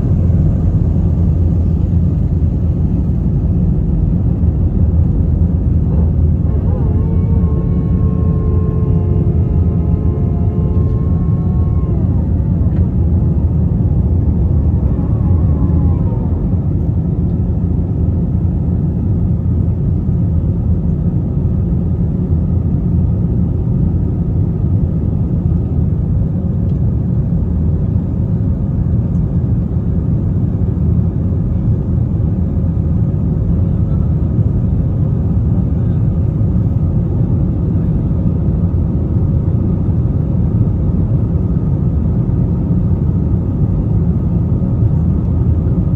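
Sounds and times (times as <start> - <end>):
jet engine cabin rumble: 0.0 - 45.9.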